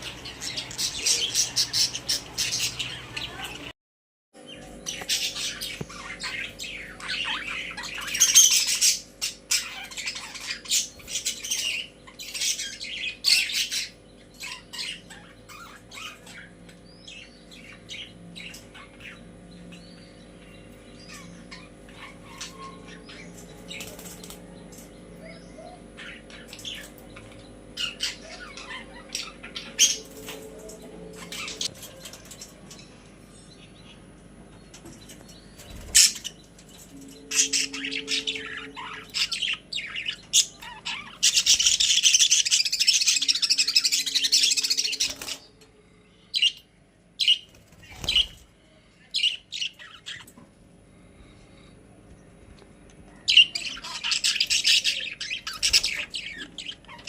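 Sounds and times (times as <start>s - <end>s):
budgies chirping: 0.0s - 3.7s, 4.5s - 51.7s, 53.1s - 57.0s.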